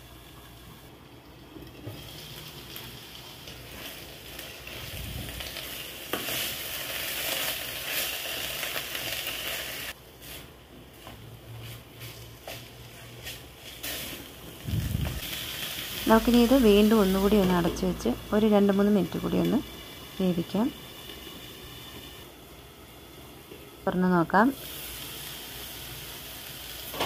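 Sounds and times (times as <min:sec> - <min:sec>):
food sizzling in a pan: 0:00.0 - 0:27.0.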